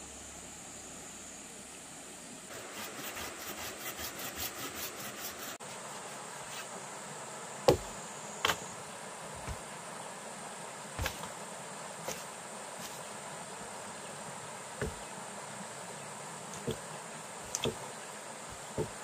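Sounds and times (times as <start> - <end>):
insect drone: 0.0 - 19.0
quick rhythmic strokes: 2.5 - 5.6
sharp knocks: 14.8 - 15.0, 18.7 - 19.0.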